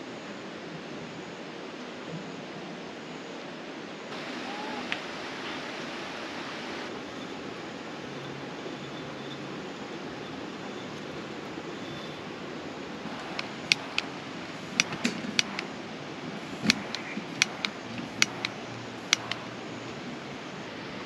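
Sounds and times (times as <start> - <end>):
flowing water rushing: 3.4 - 8.7, 9.4 - 21.0
sharp click: 13.1 - 15.7, 16.5 - 19.5.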